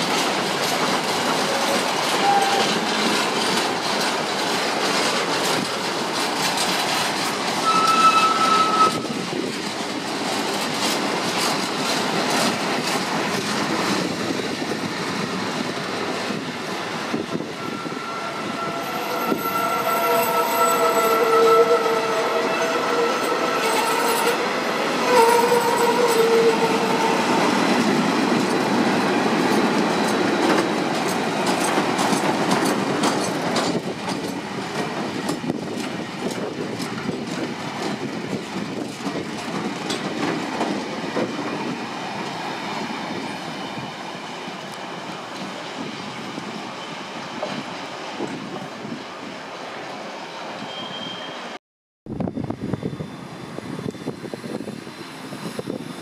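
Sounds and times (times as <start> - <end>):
wheels clattering over rail joints: 0.0 - 14.4, 25.2 - 41.8
train wagons rumbling and rattling: 0.0 - 49.8, 52.1 - 56.0
wheels squealing: 7.6 - 9.2.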